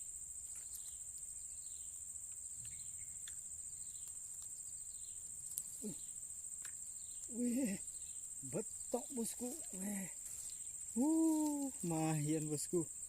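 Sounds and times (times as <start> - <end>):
insects trilling: 0.0 - 13.0
faint short falling calls: 7.2 - 12.4.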